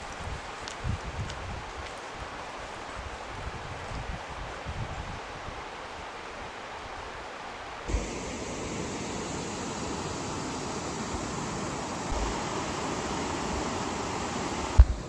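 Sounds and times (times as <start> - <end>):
flowing water rushing: 7.9 - 15.0.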